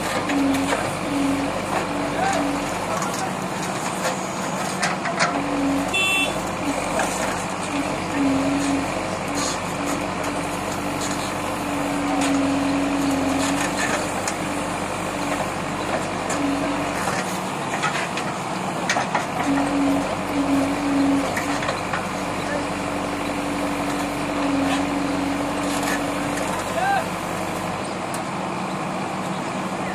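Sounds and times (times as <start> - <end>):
diesel engine running under load: 0.0 - 29.9
soil being dug and dumped: 6.7 - 14.5.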